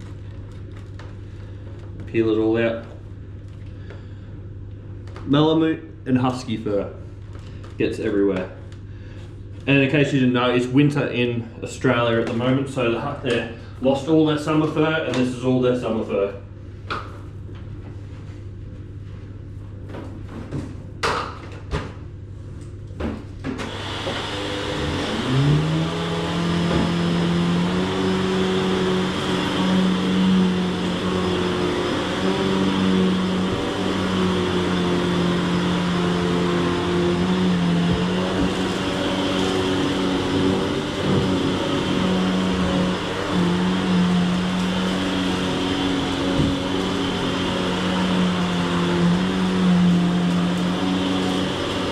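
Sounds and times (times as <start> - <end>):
upright vacuum motor whine: 23.6 - 51.9.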